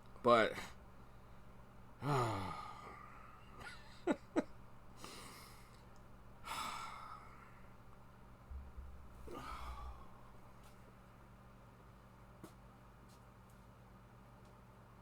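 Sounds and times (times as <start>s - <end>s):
man sighing: 2.0s - 3.8s, 9.2s - 10.3s
breathy exhale: 6.4s - 7.8s, 9.2s - 10.8s.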